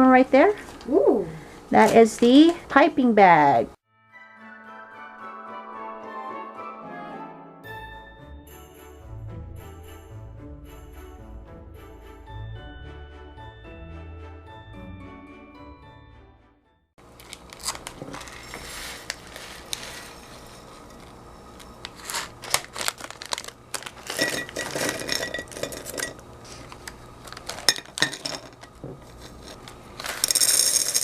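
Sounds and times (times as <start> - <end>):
plastic packaging crinkling: 17.0 - 31.0.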